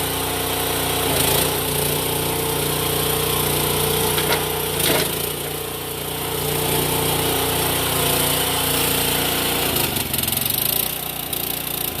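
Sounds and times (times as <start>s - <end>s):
track loader engine running: 0.0s - 12.0s.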